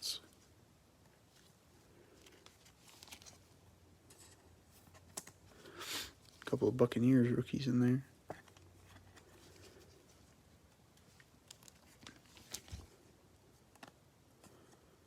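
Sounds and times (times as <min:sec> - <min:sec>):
trading cards rustling: 0:01.2 - 0:06.8, 0:08.2 - 0:14.8
soft clicks of card and plastic: 0:13.6 - 0:14.8.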